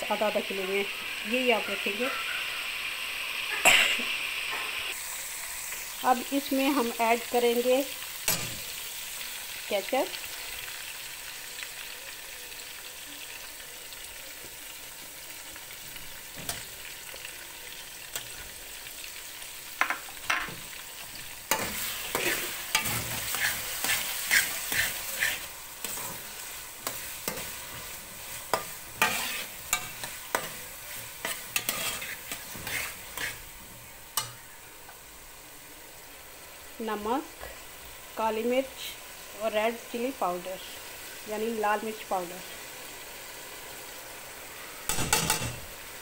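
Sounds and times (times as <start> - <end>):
chicken sizzling in a pot: 0.0 - 46.0
metal fork scraping a pot: 21.5 - 26.2, 28.5 - 30.6, 31.2 - 33.4.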